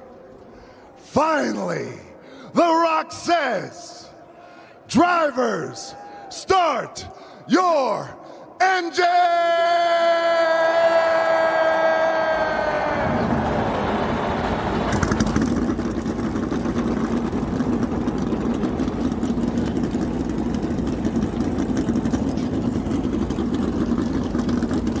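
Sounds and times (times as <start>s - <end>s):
race car engines rumbling: 10.7s - 25.0s
engine crackle and throttle blips: 12.8s - 25.0s.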